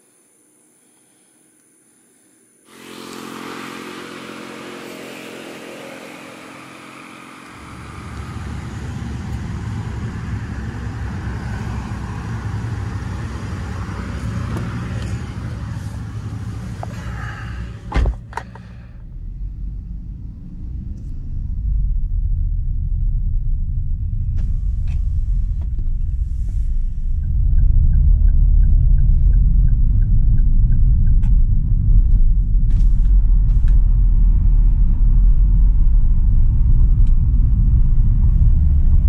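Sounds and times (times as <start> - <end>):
car engine idling: 2.7 - 22.0
car door shutting: 17.8 - 18.6.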